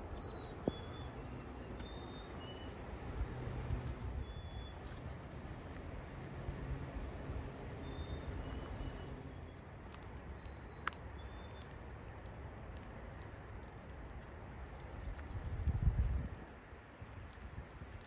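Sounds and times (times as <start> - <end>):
sparrows singing and calling: 0.0 - 3.3, 4.1 - 9.6, 10.3 - 11.8
wind rumble on microphone: 0.0 - 18.0.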